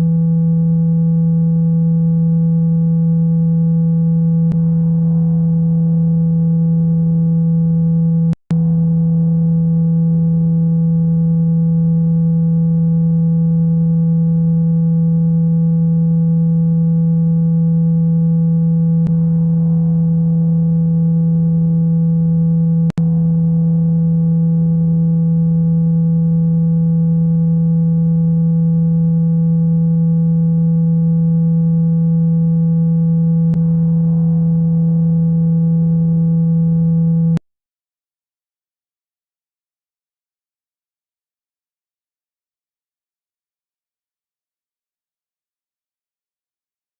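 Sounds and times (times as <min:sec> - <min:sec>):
steady low electronic tone: 0:00.0 - 0:37.4.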